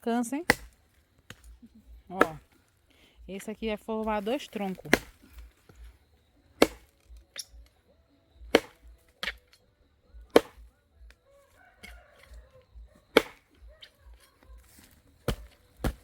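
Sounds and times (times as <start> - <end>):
billhook chopping into log: 0.4 - 1.5, 2.1 - 2.6, 4.7 - 5.4, 6.6 - 7.6, 8.5 - 9.6, 10.2 - 10.7, 13.1 - 13.7, 15.2 - 16.0.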